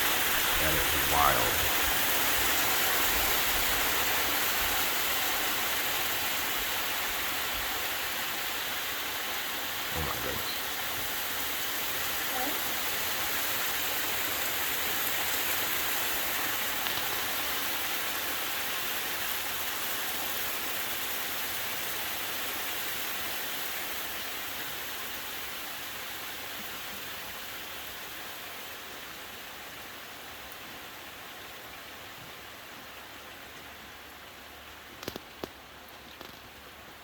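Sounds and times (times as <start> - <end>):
hail and rain pelting down: 0.0 - 7.9, 9.4 - 22.0.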